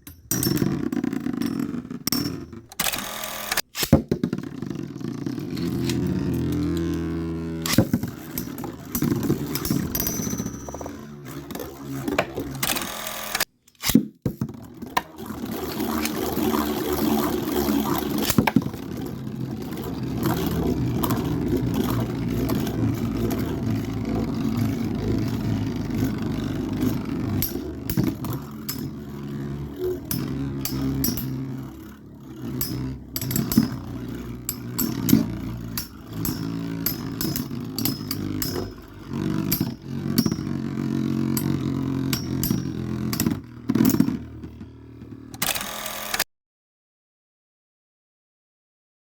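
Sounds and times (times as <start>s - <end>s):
spinning tops whirring and grinding: 0.0s - 46.2s
tops clicking against each other: 25.1s - 40.7s.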